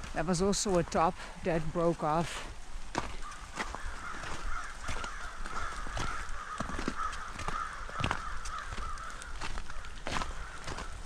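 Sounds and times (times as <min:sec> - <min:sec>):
crows cawing: 0:02.9 - 0:11.0.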